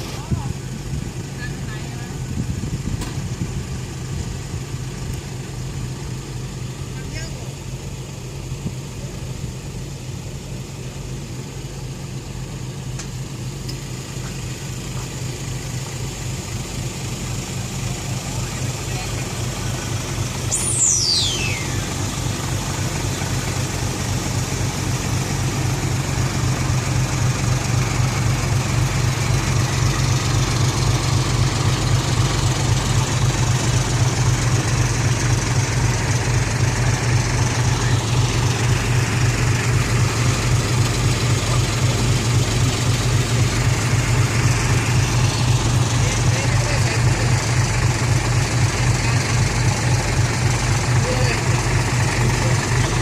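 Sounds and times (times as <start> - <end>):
diesel truck engine idling: 0.0 - 53.0
high whistle falling in pitch: 20.5 - 22.4.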